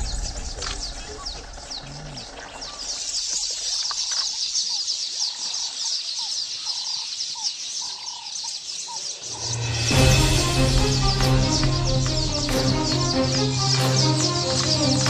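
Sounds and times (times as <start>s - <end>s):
rapid high bird chirps: 0.0s - 15.0s
low bird call notes: 8.9s - 15.0s.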